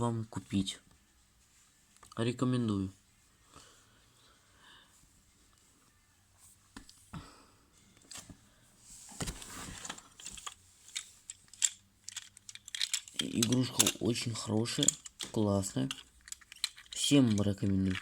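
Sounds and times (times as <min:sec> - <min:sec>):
plastic toy parts clicking: 0:10.2 - 0:18.0.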